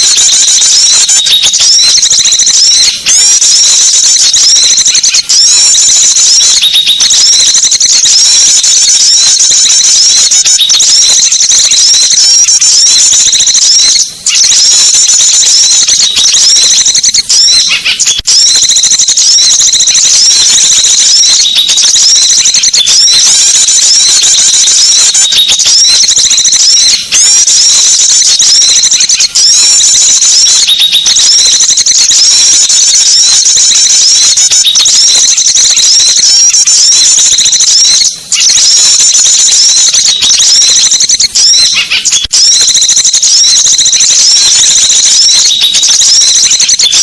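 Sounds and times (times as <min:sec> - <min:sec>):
songbirds chirping and trilling: 0:04.6 - 0:07.2, 0:13.0 - 0:18.2.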